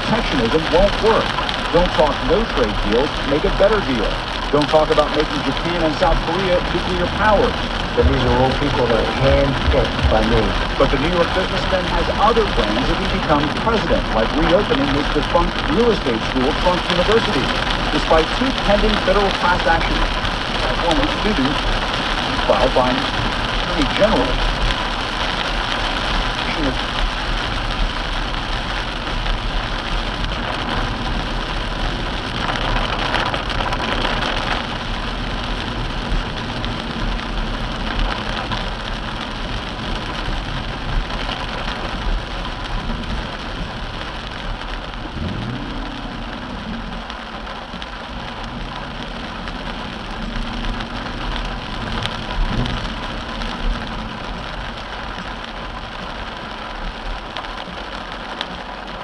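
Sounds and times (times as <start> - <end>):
car engine running: 0.0 - 59.0
heavy rain on car roof: 0.0 - 59.0.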